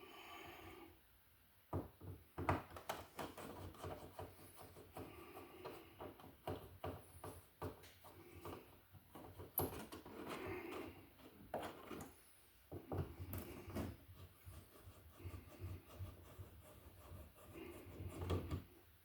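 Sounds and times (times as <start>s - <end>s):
small clicks taps and rustles: 1.7s - 13.9s.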